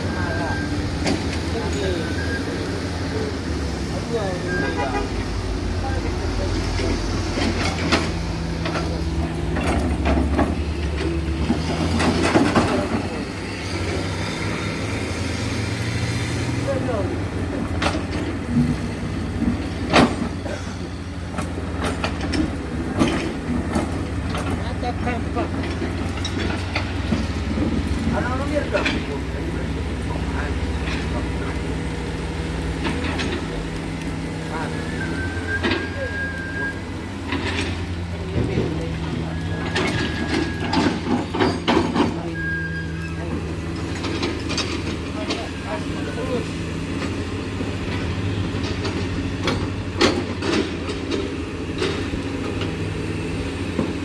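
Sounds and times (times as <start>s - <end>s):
heavy diesel engine running: 0.0s - 54.0s
clanks and knocks: 6.6s - 13.2s, 21.3s - 29.7s, 39.6s - 42.4s, 43.3s - 45.6s, 47.0s - 52.9s.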